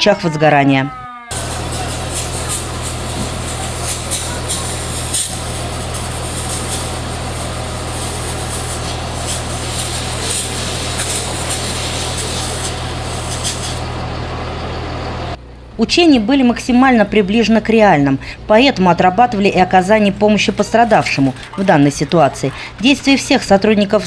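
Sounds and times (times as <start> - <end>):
fire truck engine humming: 0.6 - 15.8.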